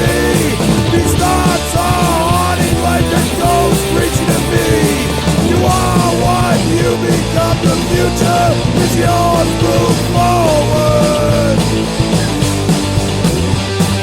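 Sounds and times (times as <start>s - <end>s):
lead guitar with bent notes: 0.0s - 14.0s
punk band backing with drums: 0.0s - 14.0s.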